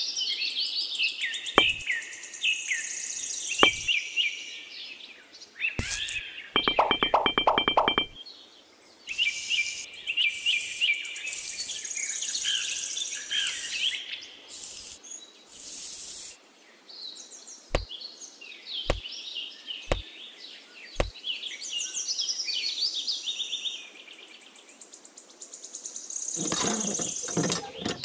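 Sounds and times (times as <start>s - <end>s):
sharp clicks: 1.6s - 1.8s, 5.8s - 8.2s
birds chirping: 5.8s - 8.2s, 9.1s - 15.0s
high rasping hiss: 9.1s - 16.4s.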